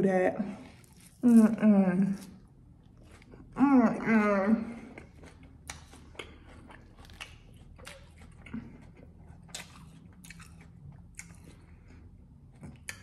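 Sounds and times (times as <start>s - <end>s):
crunchy lettuce chewing: 0.5s - 3.6s, 4.9s - 13.0s.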